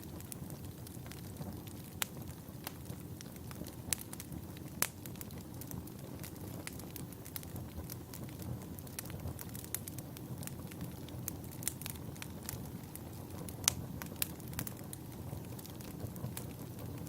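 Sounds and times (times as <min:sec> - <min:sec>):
wood fire pops and snaps: 0:00.0 - 0:17.0.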